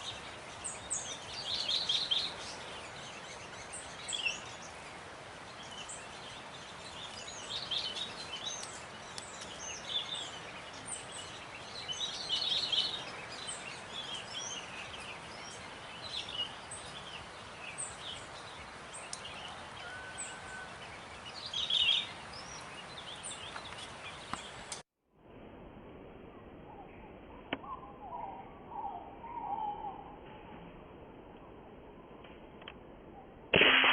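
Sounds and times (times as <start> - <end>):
steady background hiss: 0.0 - 24.8
wild birds chirping: 0.0 - 24.8, 26.3 - 30.7.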